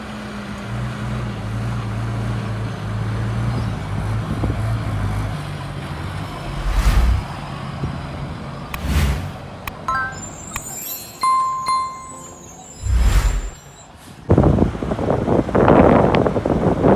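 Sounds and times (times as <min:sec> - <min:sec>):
heavy diesel engine running: 0:00.0 - 0:10.5
brief rush of noise: 0:06.4 - 0:07.4, 0:08.8 - 0:09.5, 0:12.8 - 0:13.7.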